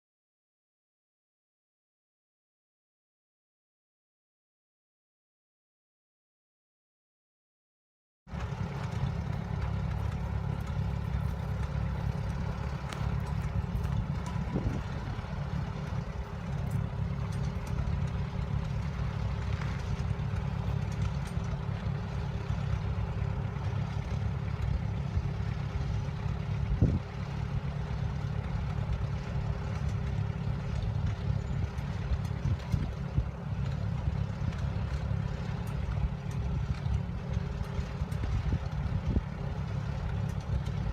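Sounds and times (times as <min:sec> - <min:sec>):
tractor engine chugging: 0:08.3 - 0:40.9.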